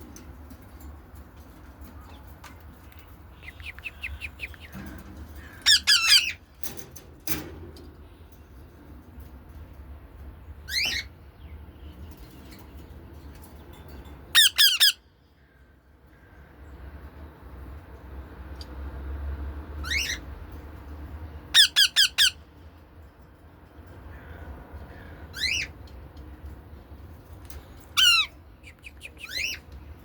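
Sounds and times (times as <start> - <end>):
birds chirping: 1.4 - 6.9, 7.9 - 17.5, 23.8 - 30.0
birds squawking harshly: 3.0 - 6.7, 10.6 - 11.2, 14.3 - 16.6, 19.8 - 20.3, 21.4 - 22.5, 24.0 - 25.8, 27.8 - 29.7.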